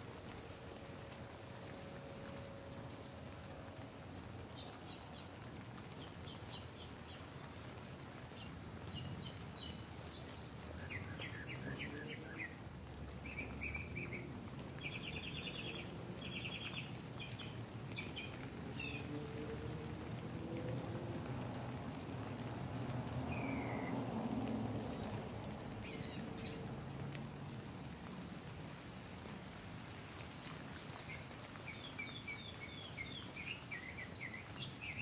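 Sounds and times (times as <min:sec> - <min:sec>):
rain pattering on a tent: 0:00.0 - 0:35.0.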